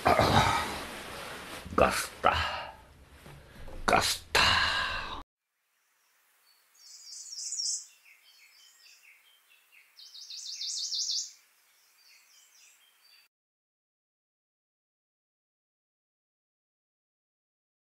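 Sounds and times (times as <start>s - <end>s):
songbird chirping: 5.6s - 13.3s.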